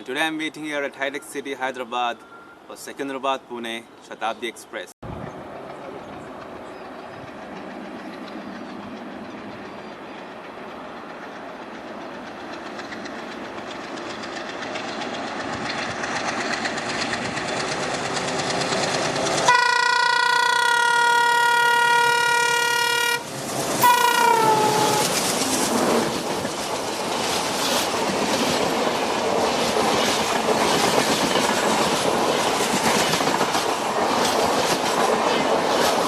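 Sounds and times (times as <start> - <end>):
train running noise: 5.0 - 36.0
locomotive horn blast: 19.5 - 25.2.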